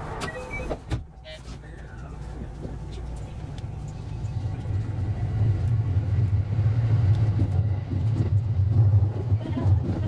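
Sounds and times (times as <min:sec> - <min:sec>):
electric train rumble: 0:01.8 - 0:10.0.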